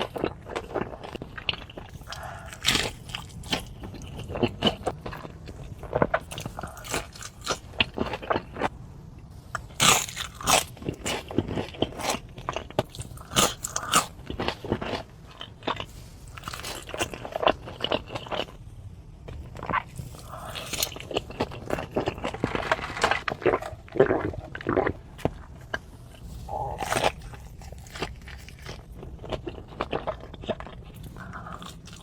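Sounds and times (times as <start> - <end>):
crunchy bites and chewing: 0.0 - 32.0.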